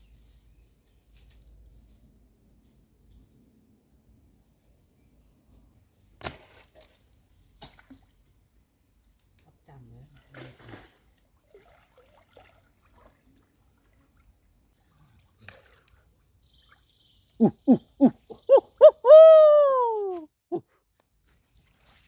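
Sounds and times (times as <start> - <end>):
animal call with falling notes: 17.4 - 20.3.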